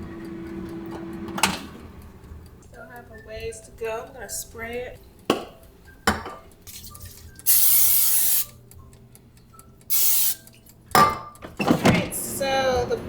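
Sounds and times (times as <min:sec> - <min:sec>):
cooking spray hissing: 0:06.7 - 0:08.6, 0:09.9 - 0:10.6.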